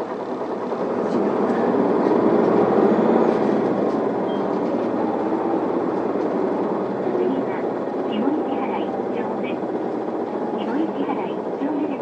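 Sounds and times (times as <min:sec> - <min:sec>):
bus diesel engine pulling away: 0:00.0 - 0:11.6.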